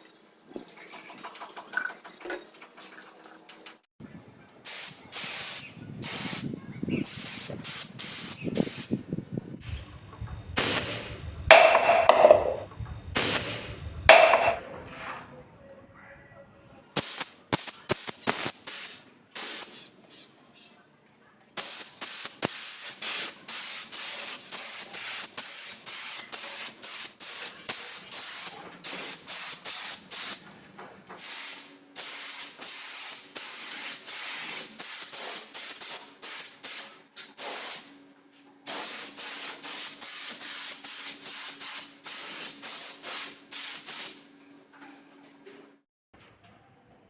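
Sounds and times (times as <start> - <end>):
paint spray gun hissing: 4.6 - 9.0, 9.6 - 14.6, 17.0 - 19.8, 21.6 - 30.4, 31.2 - 37.9, 38.7 - 44.2.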